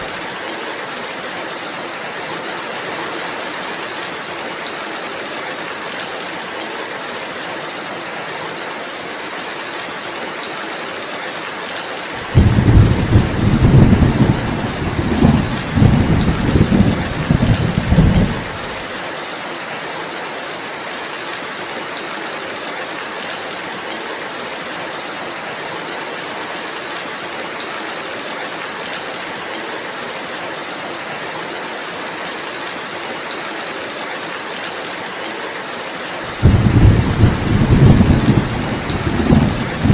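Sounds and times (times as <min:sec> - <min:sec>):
rainfall hiss: 0:00.0 - 0:39.9
low rumble of thunder: 0:12.2 - 0:18.8, 0:36.4 - 0:39.9.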